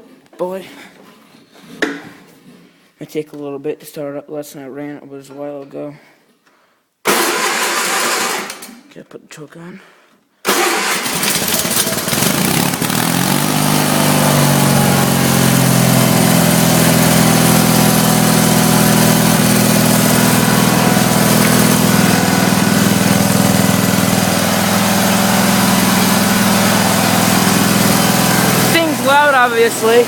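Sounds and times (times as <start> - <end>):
garden tractor engine running: 7.2 - 8.6, 10.5 - 30.0.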